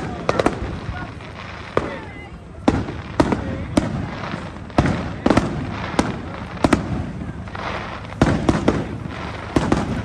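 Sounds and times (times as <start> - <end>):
firework shells bursting: 0.0 - 10.0
steady background noise: 0.0 - 10.0.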